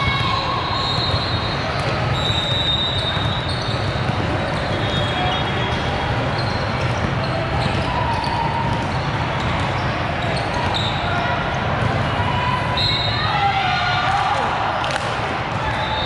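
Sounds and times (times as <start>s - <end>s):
volleyballs hit and bouncing: 0.0s - 2.2s, 2.8s - 10.8s, 11.4s - 12.2s, 14.0s - 16.0s
voices of players and spectators: 0.0s - 16.0s
sneakers squeaking on court: 0.8s - 11.9s.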